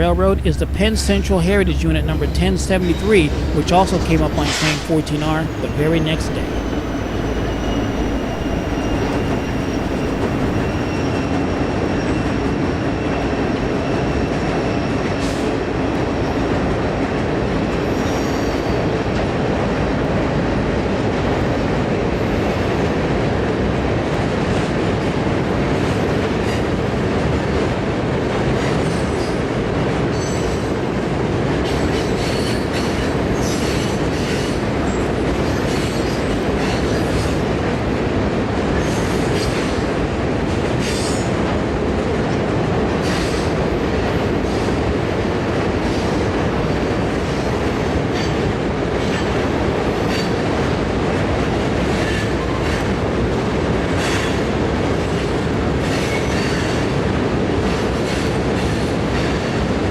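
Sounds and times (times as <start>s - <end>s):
high wheel squeal: 0.0s - 12.2s
freight train rumbling past: 0.0s - 59.9s.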